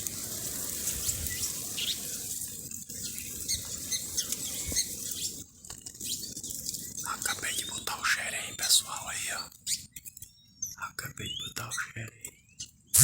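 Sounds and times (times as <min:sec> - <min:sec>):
birds wings fluttering: 0:00.0 - 0:07.0
small birds chirping: 0:00.0 - 0:13.0.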